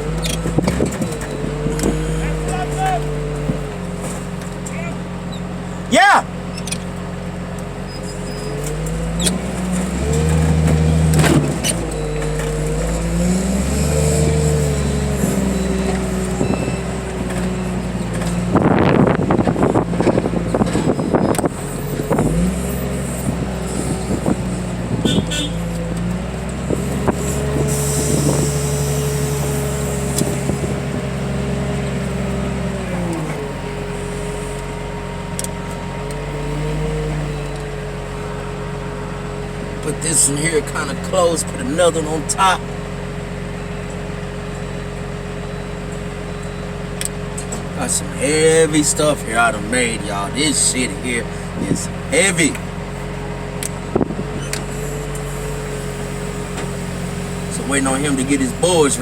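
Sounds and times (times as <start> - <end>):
diesel engine revving: 0.0 - 59.0
hydraulic whine: 0.0 - 59.0.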